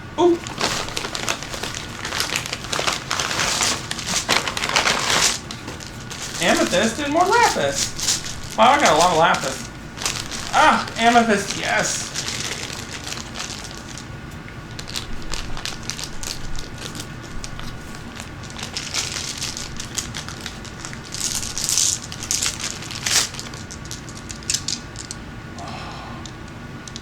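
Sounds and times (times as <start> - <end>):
plastic bag crinkling: 0.2 - 25.2
stones clicking together: 18.8 - 25.2.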